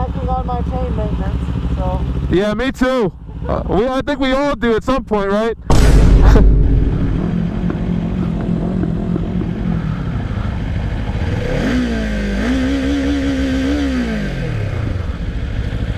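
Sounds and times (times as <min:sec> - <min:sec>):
motorcycle engine revving: 0:00.0 - 0:02.4, 0:06.6 - 0:15.9.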